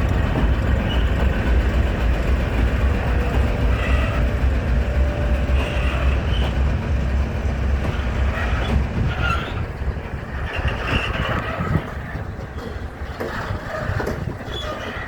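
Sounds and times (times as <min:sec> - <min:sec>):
locomotive engine rumble: 0:00.0 - 0:15.0
train wheels on rails: 0:00.0 - 0:15.0
wheel squeals: 0:00.1 - 0:01.4, 0:03.0 - 0:06.7, 0:07.8 - 0:15.0.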